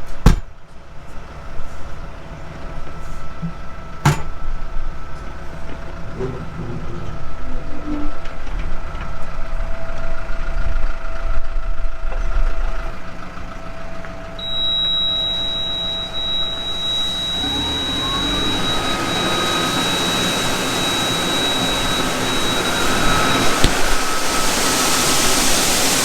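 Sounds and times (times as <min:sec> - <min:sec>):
farm machine engine running: 0:10.8 - 0:26.0
steady high whine: 0:14.1 - 0:26.0.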